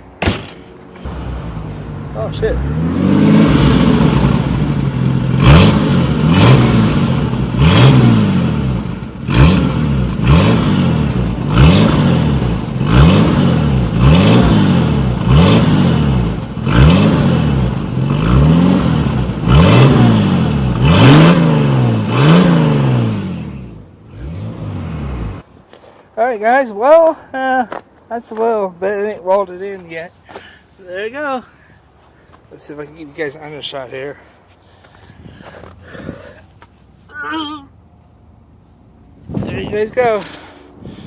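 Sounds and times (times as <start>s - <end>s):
loud car engine revving: 1.1s - 25.4s.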